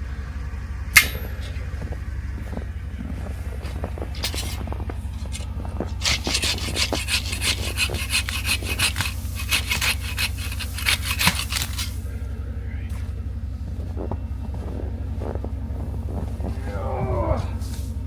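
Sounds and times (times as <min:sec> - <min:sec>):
steady low hum: 0:00.0 - 0:18.0
hand saw cutting wood: 0:06.0 - 0:12.0.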